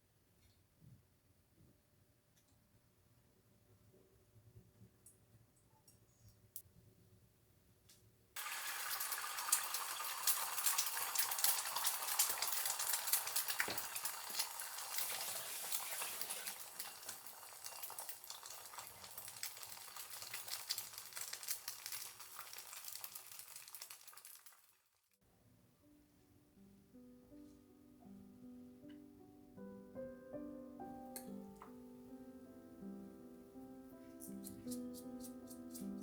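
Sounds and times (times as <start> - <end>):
food sizzling in hot oil: 8.4 - 24.9.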